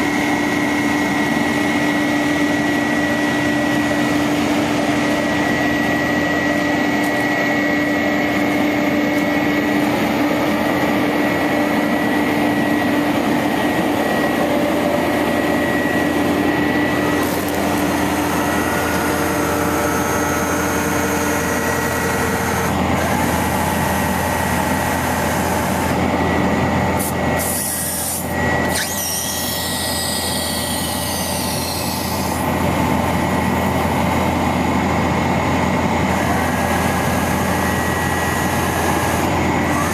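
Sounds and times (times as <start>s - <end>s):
truck engine drone with whine: 0.0s - 39.9s
faint high squealing glides: 27.4s - 32.4s.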